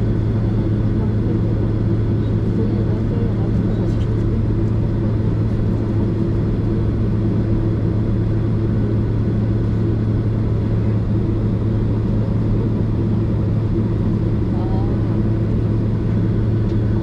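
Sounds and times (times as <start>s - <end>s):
airliner cabin drone: 0.0s - 17.0s.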